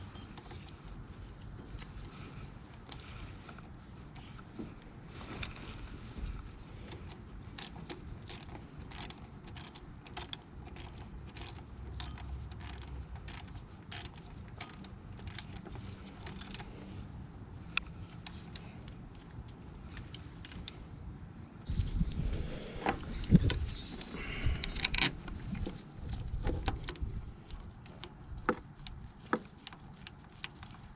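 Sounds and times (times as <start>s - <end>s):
ratchet wrench clicking: 7.6s - 16.6s.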